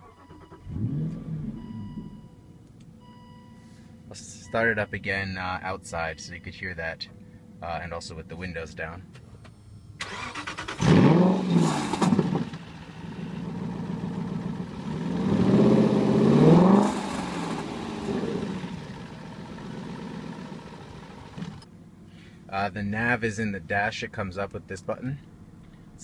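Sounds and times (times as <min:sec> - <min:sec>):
car engine starting and revving: 0:00.0 - 0:02.4, 0:10.0 - 0:21.7
car engine idling: 0:12.2 - 0:22.5.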